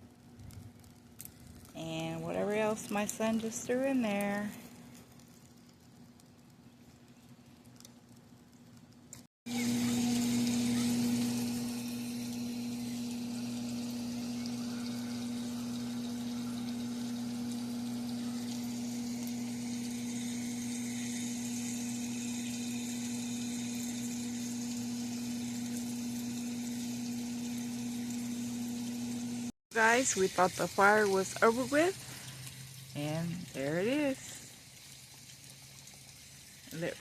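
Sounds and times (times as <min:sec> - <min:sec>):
wood fire hissing: 0:00.0 - 0:37.0.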